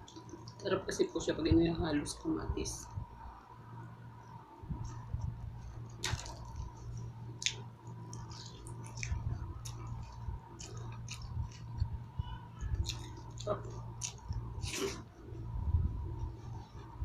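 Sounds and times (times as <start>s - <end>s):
low hum: 0.0s - 17.0s
person chewing food: 4.8s - 15.5s.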